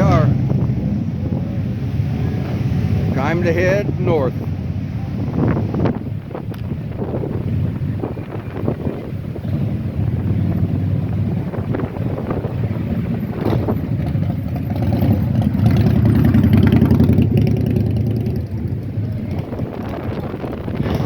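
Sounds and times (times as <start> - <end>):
motorcycle engine running: 4.7 - 21.0.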